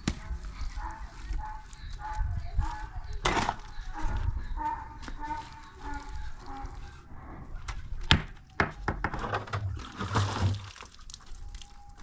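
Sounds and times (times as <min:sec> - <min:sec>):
sharp knocks and thuds: 0:07.7 - 0:10.7.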